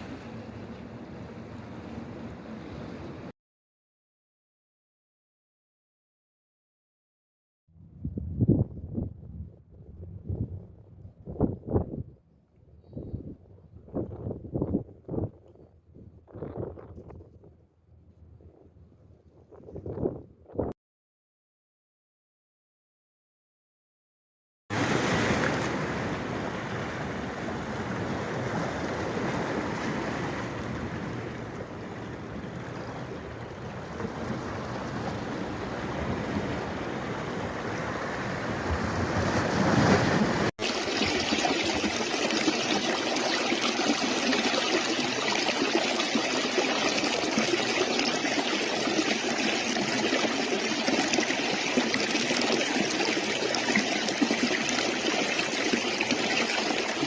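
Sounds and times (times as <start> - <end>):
stream water rushing: 0.0 - 3.3, 24.7 - 57.0.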